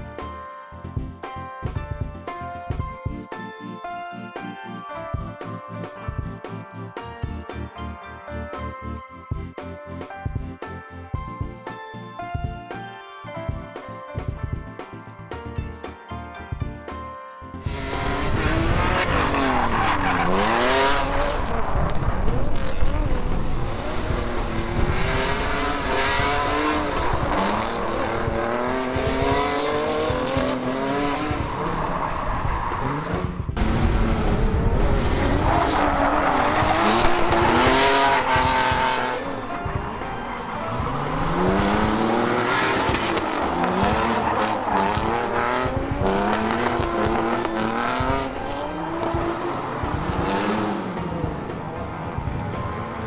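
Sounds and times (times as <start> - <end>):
car engine revving hard: 17.7 - 53.0
tyre squeal: 18.8 - 22.4, 30.8 - 33.4, 34.4 - 38.5
tyres squealing: 34.6 - 50.6.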